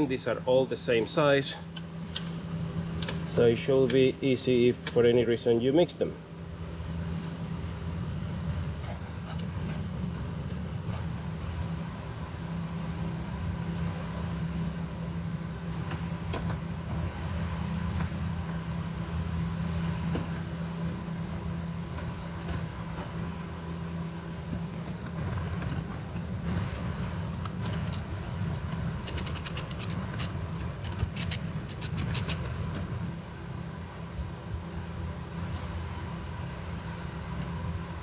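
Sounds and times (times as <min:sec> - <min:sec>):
steady low hum: 0:00.0 - 0:38.0
metal tools clinking: 0:29.0 - 0:30.3
socket ratchet clicking: 0:29.0 - 0:32.6.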